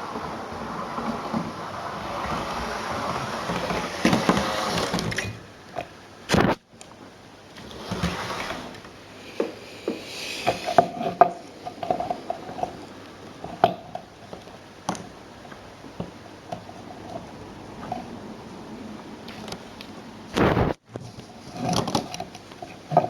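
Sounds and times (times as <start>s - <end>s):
scraping: 0.0s - 6.6s.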